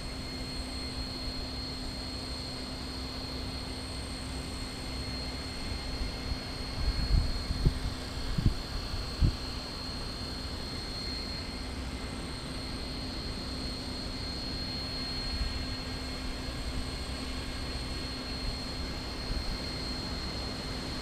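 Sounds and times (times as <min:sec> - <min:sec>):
wind rumbling on microphone: 0:06.7 - 0:09.4.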